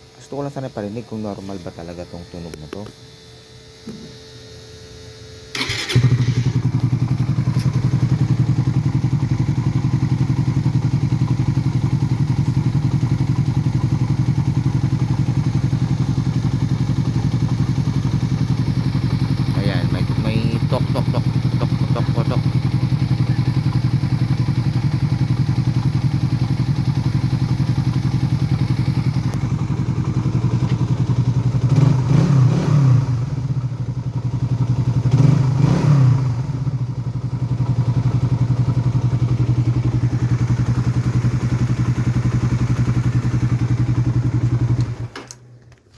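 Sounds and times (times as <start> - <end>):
motorcycle engine idling with ticking: 5.5 - 45.2
throttle revving: 18.7 - 23.4, 31.6 - 33.4, 35.0 - 36.6.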